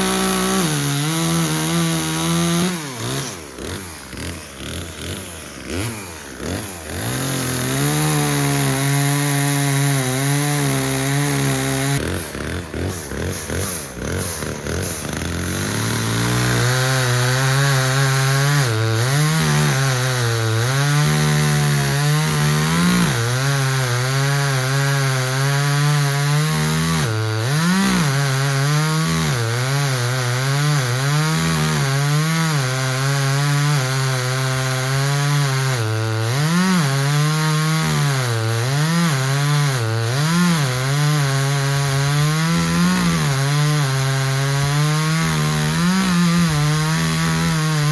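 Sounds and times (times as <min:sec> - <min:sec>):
chainsaw cutting wood: 0:00.0 - 0:47.9.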